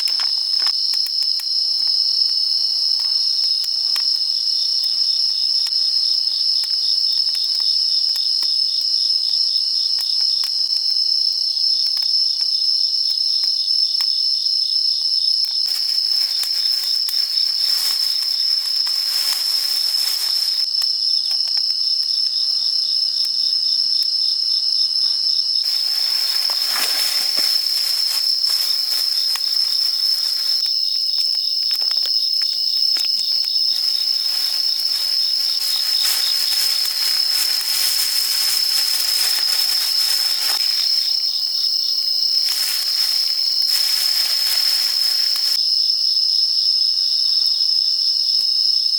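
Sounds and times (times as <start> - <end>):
insects chirping: 0.0 - 48.9
rustling noise: 15.7 - 20.7, 25.7 - 30.6, 32.8 - 41.6, 42.3 - 45.6.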